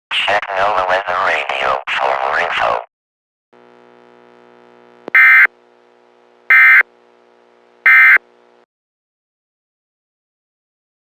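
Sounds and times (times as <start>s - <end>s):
faint electronic hum: 3.6s - 8.7s
loud short electronic beeps: 5.2s - 5.5s, 6.5s - 6.8s, 7.9s - 8.2s.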